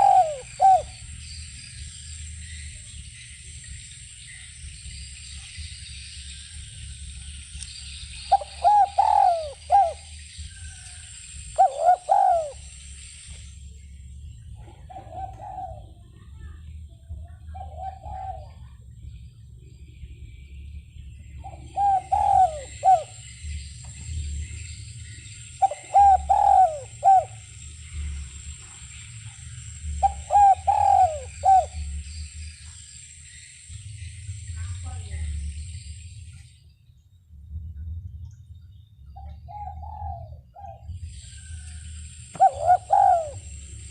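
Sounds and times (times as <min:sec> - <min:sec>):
dove cooing: 0:00.0 - 0:01.1, 0:08.2 - 0:10.9, 0:11.5 - 0:12.8, 0:14.6 - 0:16.3, 0:17.4 - 0:18.8, 0:21.4 - 0:23.3, 0:25.6 - 0:28.1, 0:29.9 - 0:32.0, 0:39.2 - 0:41.6, 0:42.3 - 0:43.9
high-pitched hiss: 0:00.0 - 0:14.6, 0:18.7 - 0:37.0, 0:40.9 - 0:43.9.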